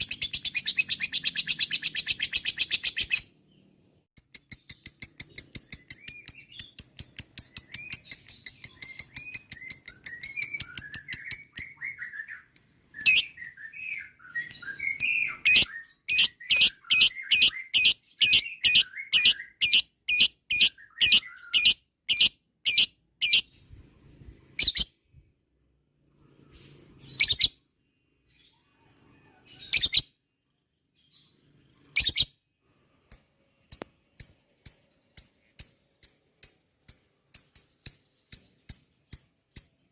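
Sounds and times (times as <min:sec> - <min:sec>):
soft bird chirping: 0:00.0 - 0:39.9
bird shrill calls: 0:04.4 - 0:23.5.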